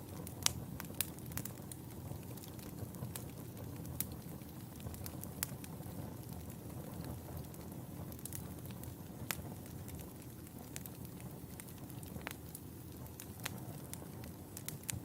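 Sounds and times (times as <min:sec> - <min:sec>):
fire crackling and popping: 0:00.0 - 0:15.0
fire flames rumbling: 0:00.0 - 0:15.0.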